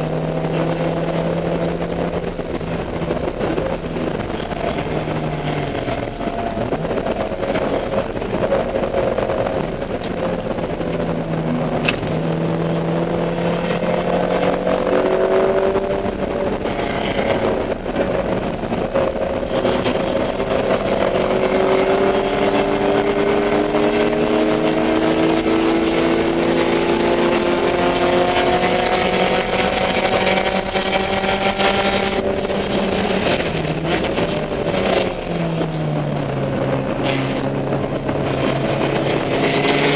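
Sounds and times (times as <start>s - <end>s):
race car engine revving: 0.0s - 39.9s
road and wind noise: 0.0s - 39.9s.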